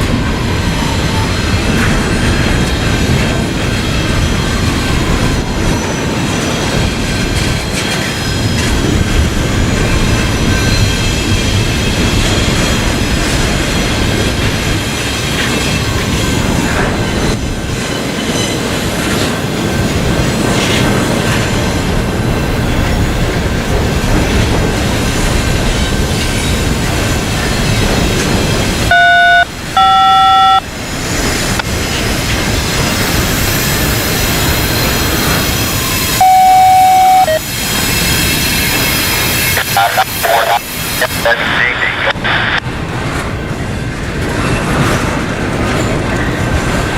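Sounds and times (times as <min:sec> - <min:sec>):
freight train wheels rumbling: 0:00.0 - 0:46.9
train horn blasts: 0:28.9 - 0:30.6, 0:36.2 - 0:37.4.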